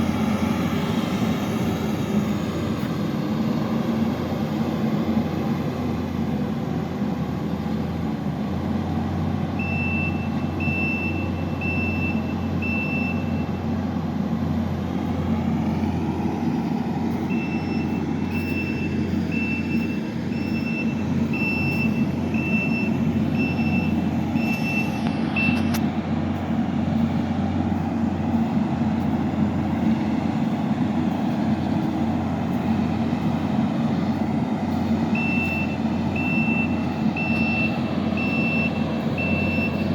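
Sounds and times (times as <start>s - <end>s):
track loader engine running: 0.0s - 39.9s
reversing alarm beeping: 9.6s - 13.6s, 15.9s - 25.8s, 32.6s - 39.9s.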